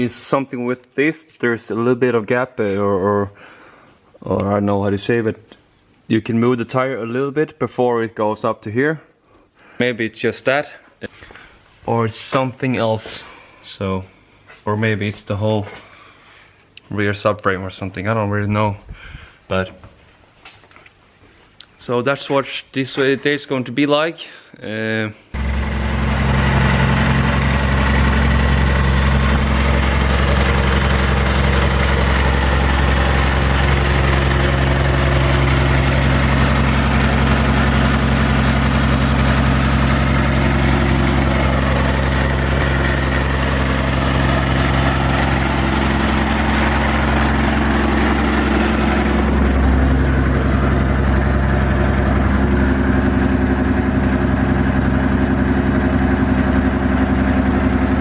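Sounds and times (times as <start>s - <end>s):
diesel engine idling: 25.4s - 58.0s.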